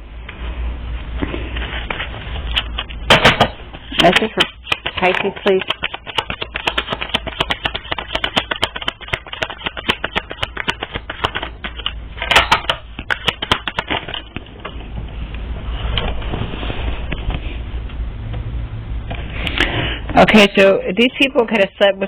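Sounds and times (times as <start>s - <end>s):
cards being shuffled: 3.9s - 12.0s, 13.0s - 14.5s.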